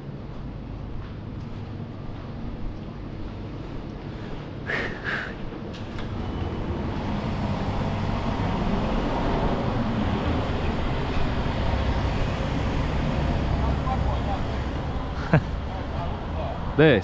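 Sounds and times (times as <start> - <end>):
car engine and traffic rumble: 5.6 - 17.0.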